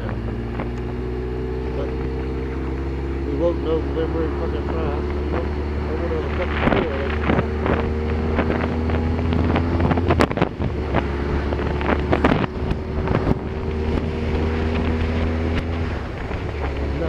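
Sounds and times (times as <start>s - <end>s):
engine drone: 0.0s - 17.0s
road noise: 0.0s - 17.0s.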